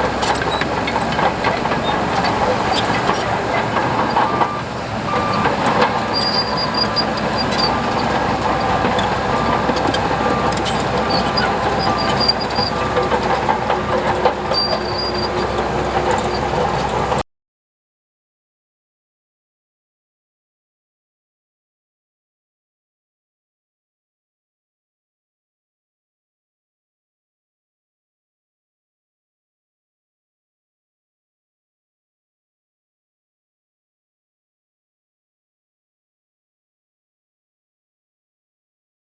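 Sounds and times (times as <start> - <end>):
diesel engine under load: 0.0 - 17.2.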